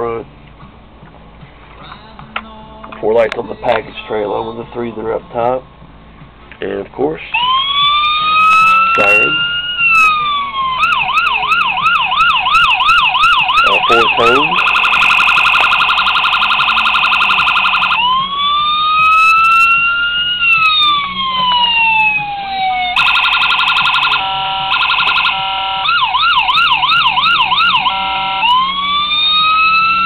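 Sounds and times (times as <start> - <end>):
electronic siren cycling tones: 7.4 - 30.0.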